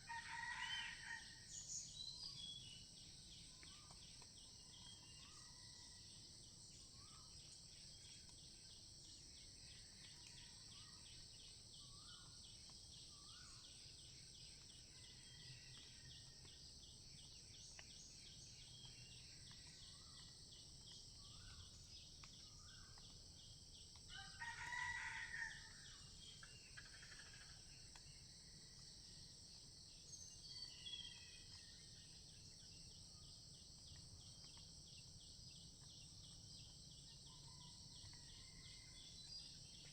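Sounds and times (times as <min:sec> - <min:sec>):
rooster crowing: 0:00.0 - 0:01.4, 0:24.1 - 0:25.8.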